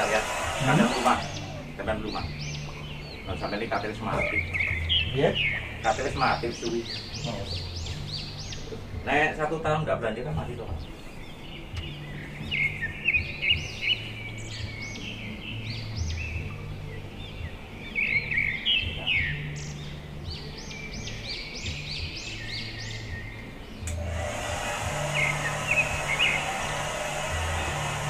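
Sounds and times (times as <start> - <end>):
steady hiss: 0.0 - 4.5, 23.8 - 28.0
small birds chirping: 0.0 - 28.0.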